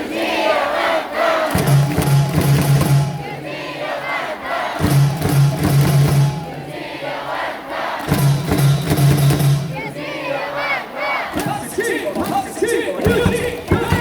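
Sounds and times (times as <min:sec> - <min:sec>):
crowd singing and chanting: 0:00.0 - 0:14.0
quick low beats: 0:01.5 - 0:03.4, 0:04.8 - 0:06.7, 0:08.0 - 0:10.0
music: 0:01.5 - 0:03.5, 0:04.7 - 0:06.8, 0:08.0 - 0:10.0.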